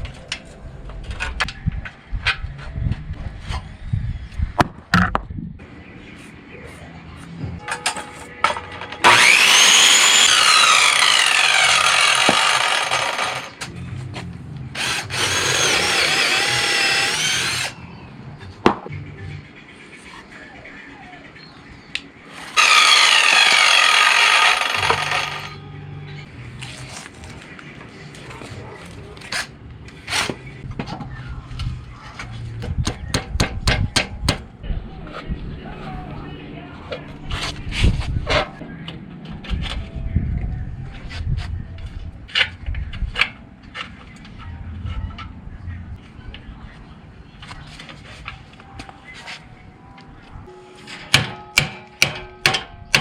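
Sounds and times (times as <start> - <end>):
power tool motor whine: 9.0 - 13.6, 14.8 - 17.8, 22.4 - 25.6.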